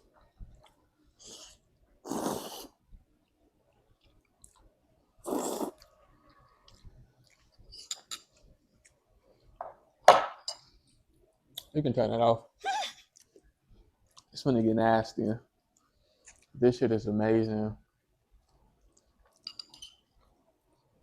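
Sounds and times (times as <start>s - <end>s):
person chewing: 0.5s - 9.6s, 15.7s - 16.6s.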